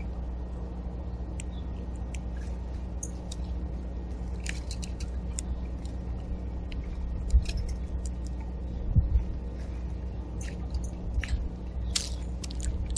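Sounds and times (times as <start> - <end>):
steady low hum: 0.0 - 12.9
high bird clicks and chips: 4.3 - 6.0, 6.7 - 8.4, 10.4 - 12.9.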